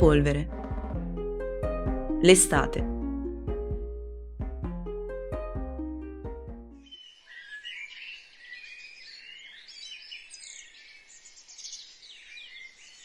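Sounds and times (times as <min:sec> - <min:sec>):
plucked string phrase: 0:00.0 - 0:06.8
songbirds chirping: 0:06.8 - 0:13.0.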